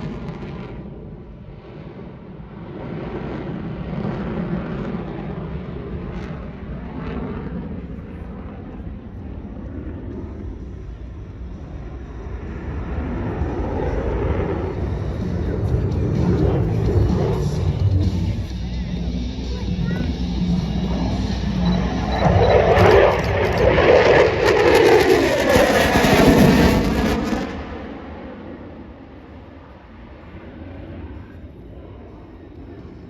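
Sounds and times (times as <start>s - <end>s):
fighter jet engine noise: 0.0s - 33.0s.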